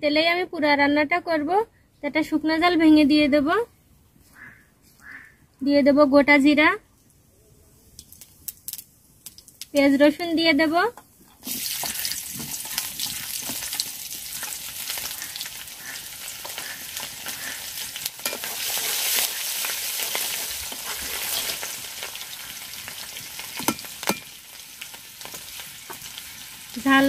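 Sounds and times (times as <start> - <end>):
onion sizzling in hot oil: 7.9 - 27.0.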